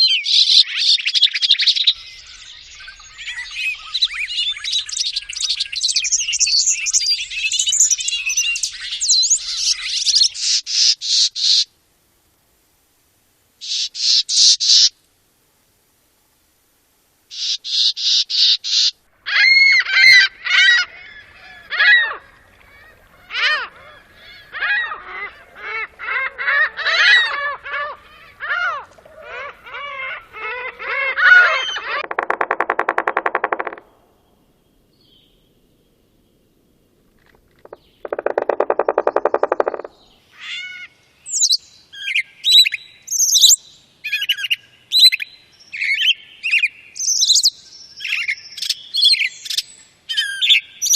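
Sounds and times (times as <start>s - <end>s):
high bird chirps: 0.0s - 11.6s, 31.6s - 34.0s, 37.6s - 40.1s, 41.3s - 50.9s
birds singing: 0.0s - 11.7s, 13.6s - 14.9s, 17.3s - 36.5s, 37.2s - 50.9s.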